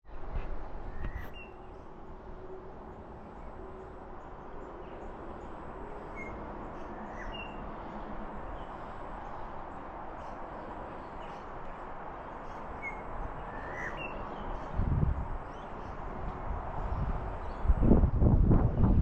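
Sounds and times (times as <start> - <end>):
steady rushing noise: 14.3 - 19.0.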